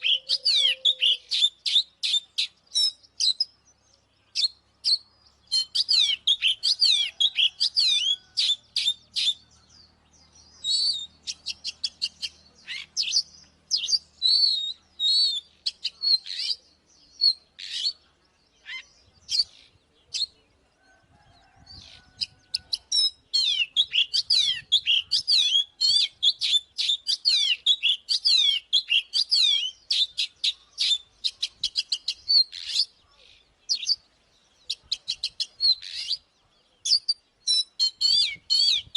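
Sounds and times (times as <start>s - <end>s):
bird singing whistles and clicks: 36.9s - 38.9s.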